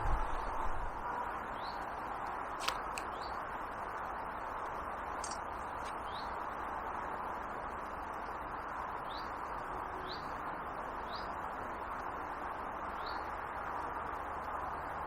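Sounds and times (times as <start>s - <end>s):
steady background hiss: 0.0s - 15.0s
sharp click: 5.2s - 6.0s.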